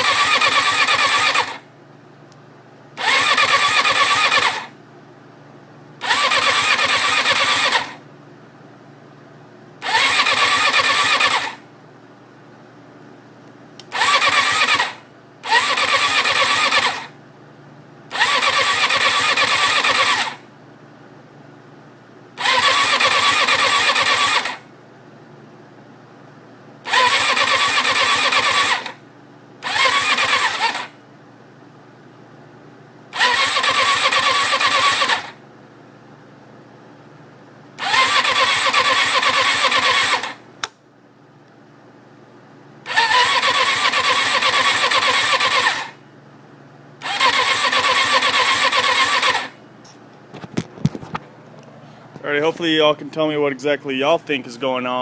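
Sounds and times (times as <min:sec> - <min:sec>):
motorcycle engine cranking on starter: 0:00.0 - 0:01.6, 0:03.0 - 0:04.7, 0:06.0 - 0:08.0, 0:09.8 - 0:11.6, 0:13.8 - 0:17.1, 0:18.1 - 0:20.4, 0:22.4 - 0:24.6, 0:26.9 - 0:29.0, 0:29.6 - 0:30.9, 0:33.1 - 0:35.4, 0:37.8 - 0:40.8, 0:42.8 - 0:46.0, 0:47.0 - 0:49.6, 0:50.4 - 0:53.0
person speaking: 0:52.1 - 0:55.0.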